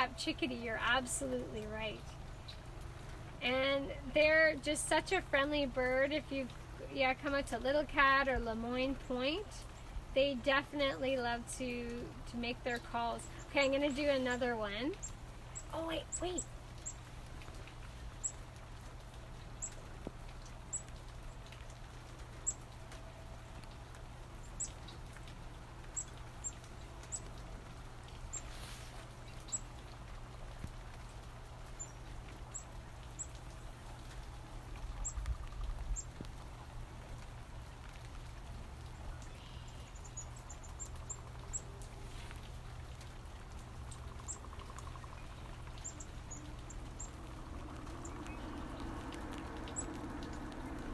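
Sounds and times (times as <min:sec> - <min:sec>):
low background hum: 0:00.0 - 0:50.9
chickadees calling: 0:08.3 - 0:17.1, 0:39.0 - 0:41.9, 0:43.6 - 0:50.9.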